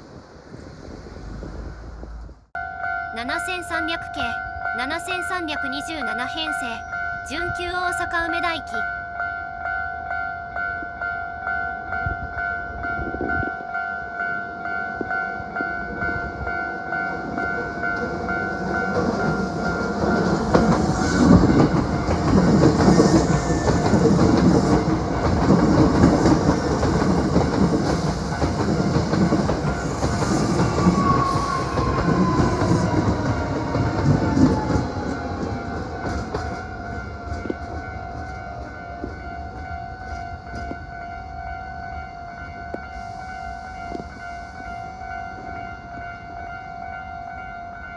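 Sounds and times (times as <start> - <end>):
electric train passing: 0.0 - 47.9
level crossing warning bell: 2.6 - 47.9.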